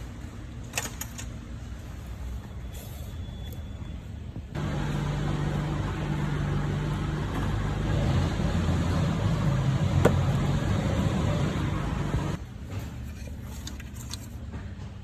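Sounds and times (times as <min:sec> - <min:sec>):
car engine running: 0:04.6 - 0:12.4.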